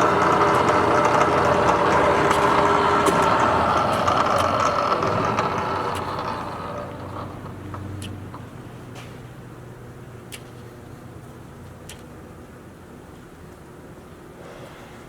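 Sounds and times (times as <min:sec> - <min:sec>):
milling machine spindle whine: 0:00.0 - 0:08.0.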